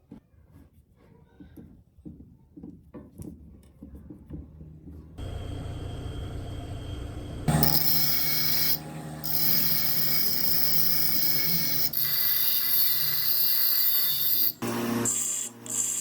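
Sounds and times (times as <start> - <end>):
abrasive tool rasping on steel: 7.5 - 16.0.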